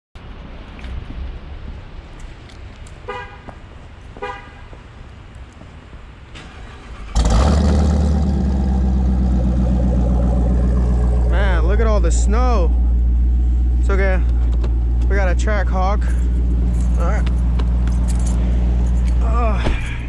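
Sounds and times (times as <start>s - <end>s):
car horn chirps: 3.1s - 3.5s, 4.2s - 4.7s
car engine starting and running: 6.2s - 20.0s.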